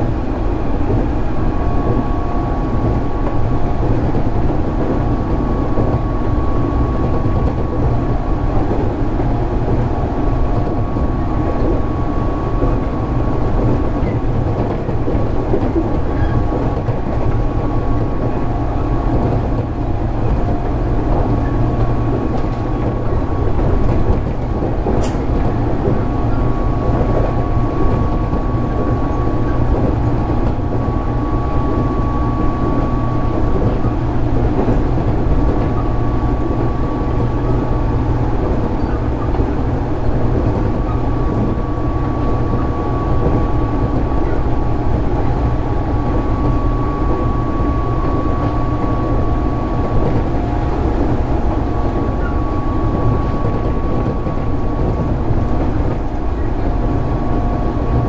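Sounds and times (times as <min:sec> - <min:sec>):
train motor whine: 0:00.0 - 0:58.0
wheels rumbling on rail: 0:00.0 - 0:58.0.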